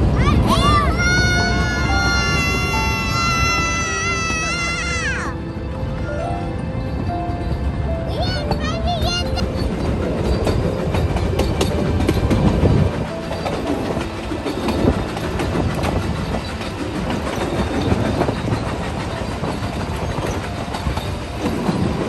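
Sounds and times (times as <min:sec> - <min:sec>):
steam train wheels clattering on rails: 0:00.0 - 0:22.0.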